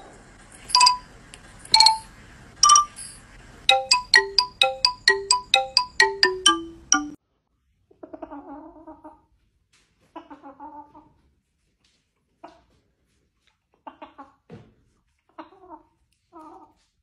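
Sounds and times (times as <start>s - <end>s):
bell-like ringtone tune: 0.7s - 1.1s, 1.7s - 3.1s, 3.7s - 7.2s.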